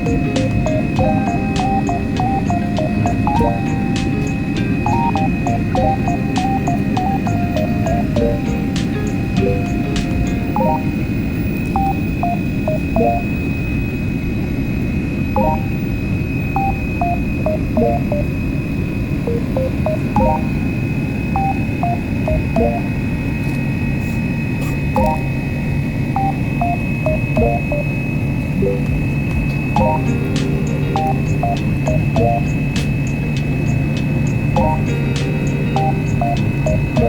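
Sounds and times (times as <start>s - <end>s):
simple tune of short notes: 0.0s - 11.2s, 11.8s - 13.4s, 15.4s - 15.8s, 16.6s - 18.3s, 19.3s - 20.6s, 21.4s - 22.9s, 25.0s - 25.4s, 26.2s - 28.0s, 28.6s - 37.0s
airliner cabin rumble: 0.0s - 13.8s
high whine: 0.0s - 37.0s.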